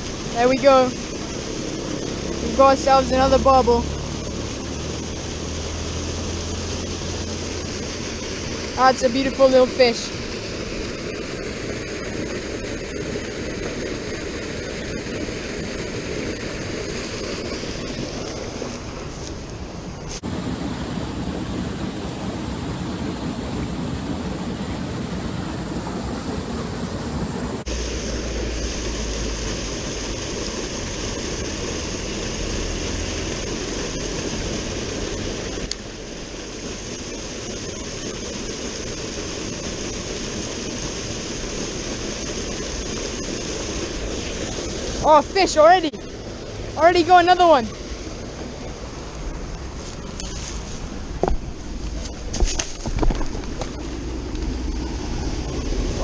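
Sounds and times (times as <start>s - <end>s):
river flowing: 20.2s - 27.7s.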